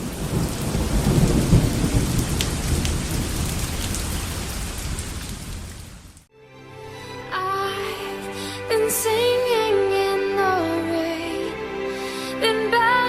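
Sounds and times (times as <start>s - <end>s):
low rumble of thunder: 0.0s - 6.2s
heavy rain falling: 0.0s - 6.3s.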